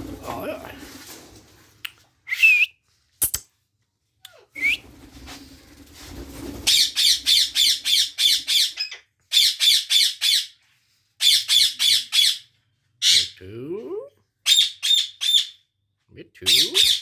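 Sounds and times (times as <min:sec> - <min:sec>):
parakeet screeching: 0:06.7 - 0:10.5, 0:11.2 - 0:13.4, 0:14.5 - 0:15.6, 0:16.5 - 0:17.0.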